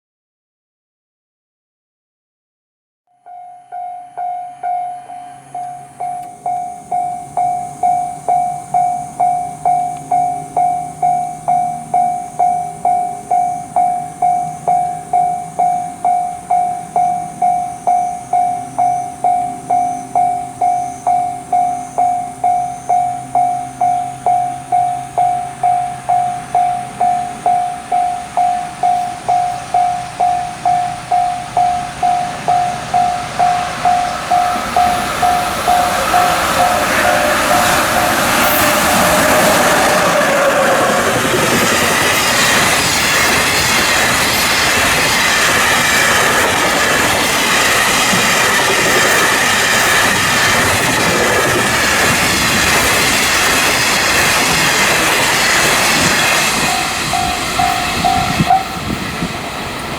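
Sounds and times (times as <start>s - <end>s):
level-crossing warning bell: 3.1s - 59.9s
approaching train: 3.2s - 59.9s.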